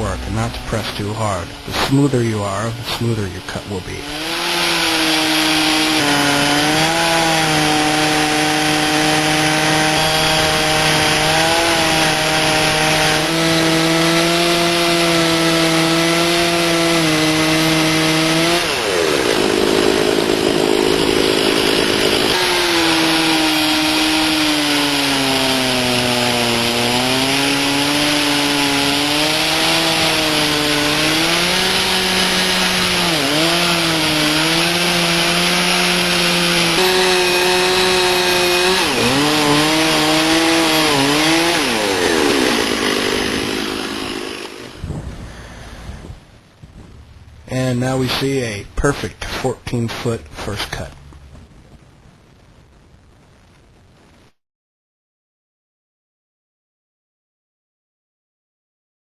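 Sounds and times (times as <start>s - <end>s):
chainsaw cutting log: 0.0s - 45.7s.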